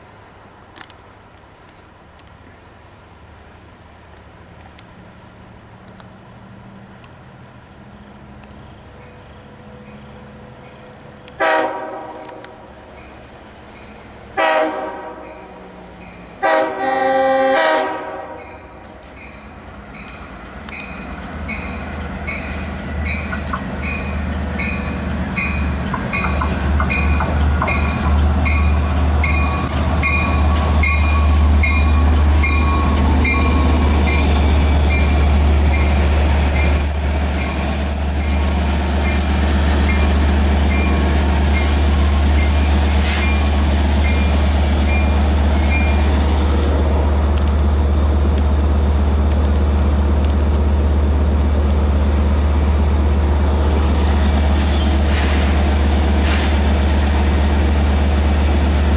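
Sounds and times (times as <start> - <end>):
diesel locomotive engine drone: 0.0 - 58.9
train bell dinging: 18.4 - 37.0
high wheel squeal: 22.4 - 40.1.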